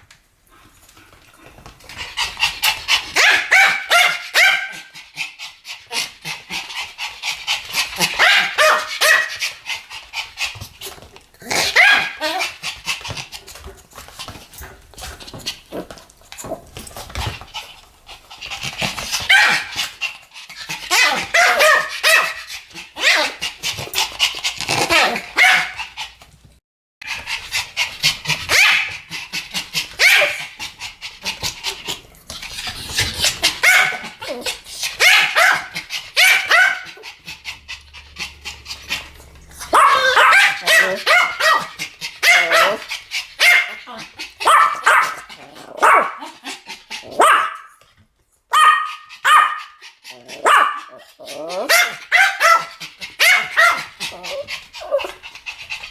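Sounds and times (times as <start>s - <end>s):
small dogs yapping: 2.0s - 5.0s, 7.5s - 10.6s, 11.4s - 13.3s, 18.5s - 26.0s, 27.0s - 47.8s, 48.5s - 55.8s.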